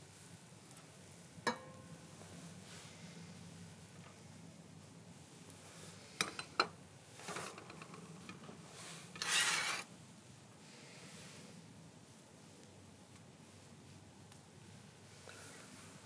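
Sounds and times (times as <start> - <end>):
cookware scraping: 9.2 - 9.9.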